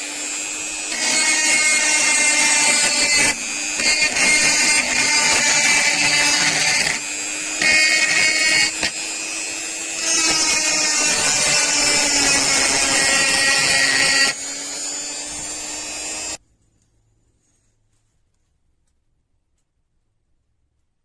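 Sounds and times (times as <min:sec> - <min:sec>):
small power tool whining: 0:00.0 - 0:16.4.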